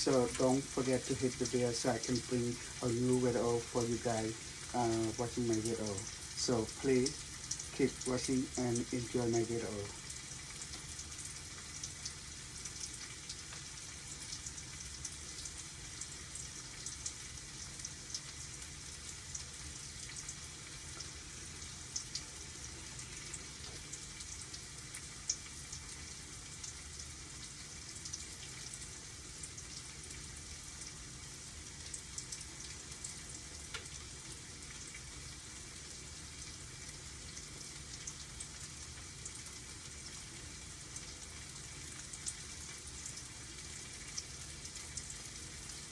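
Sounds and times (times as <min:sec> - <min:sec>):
food sizzling in oil: 0:00.0 - 0:45.9
oil crackling and popping: 0:00.0 - 0:45.9.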